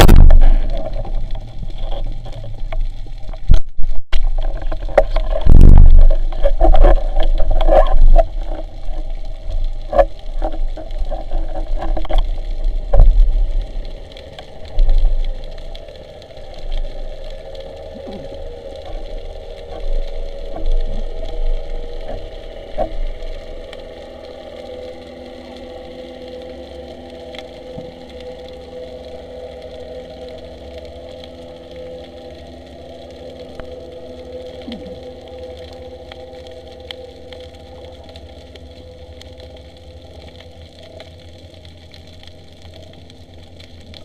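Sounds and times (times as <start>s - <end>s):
underwater knocks and bumps: 0.0s - 13.4s
water rushing: 0.0s - 26.7s
low underwater rumble: 0.0s - 44.0s.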